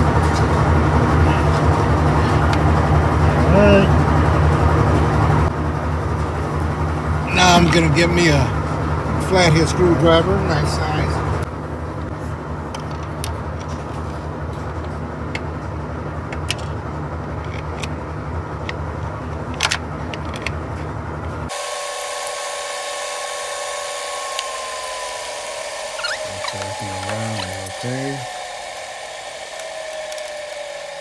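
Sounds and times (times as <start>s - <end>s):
steady low hum: 21.4s - 31.0s
whine falling in pitch: 21.5s - 31.0s
hand tools clicking and tapping: 24.2s - 31.0s.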